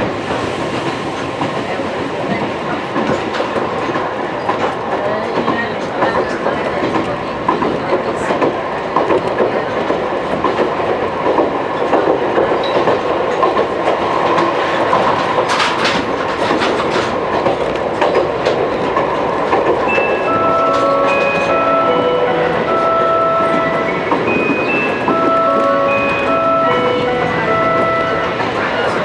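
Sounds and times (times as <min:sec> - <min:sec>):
train wheels rumbling on rail: 0:00.0 - 0:29.0
chime melody: 0:19.9 - 0:29.0.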